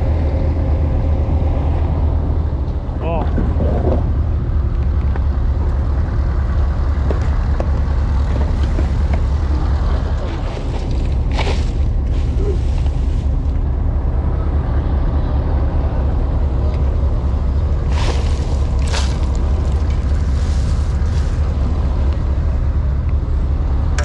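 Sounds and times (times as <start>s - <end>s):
low engine drone: 0.0s - 24.0s.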